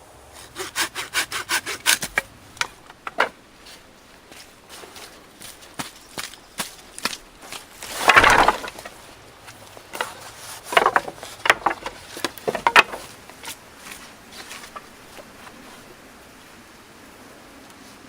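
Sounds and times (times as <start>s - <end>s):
dry sticks snapping: 0.6s - 3.3s, 6.2s - 14.9s.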